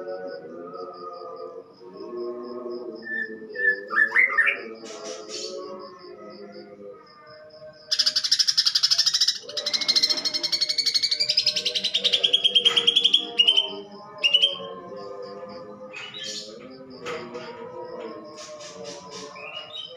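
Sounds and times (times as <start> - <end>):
bird singing harsh chattering trill: 7.9 - 14.8, 18.4 - 19.9.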